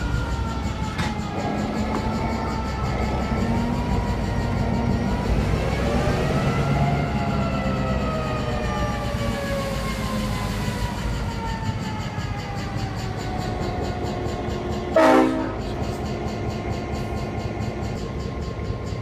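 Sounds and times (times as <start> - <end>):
diesel engine rumble: 0.0 - 19.0
train wheels clicking on rails: 0.0 - 19.0
train horn blast: 14.9 - 15.8.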